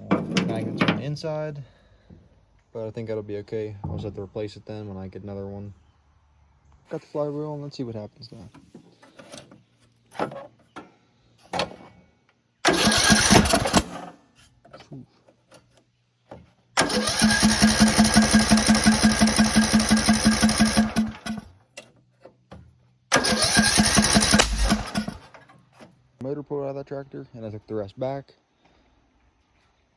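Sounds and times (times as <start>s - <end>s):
lawn tractor engine turning over: 12.6s - 14.2s, 16.3s - 21.9s, 23.1s - 25.9s.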